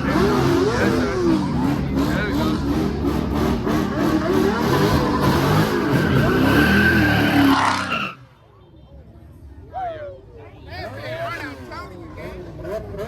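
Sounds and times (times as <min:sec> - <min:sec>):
car engine revving hard: 0:00.0 - 0:07.9
tyres squealing: 0:04.5 - 0:08.2.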